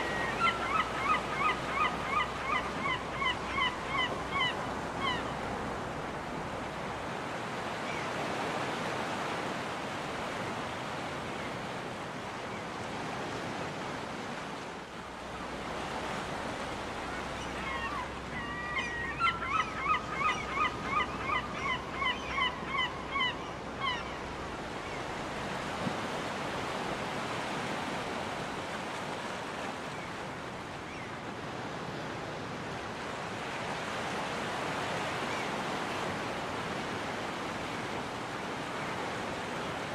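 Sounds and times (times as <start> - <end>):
seagull calling: 0.0 - 5.4, 17.0 - 25.1
ocean surf washing on beach: 0.0 - 18.4, 23.4 - 39.9.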